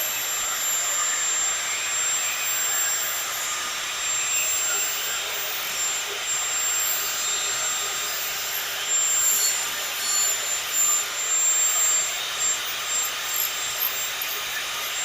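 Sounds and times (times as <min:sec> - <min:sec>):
angle grinder cutting metal: 0:00.0 - 0:15.0.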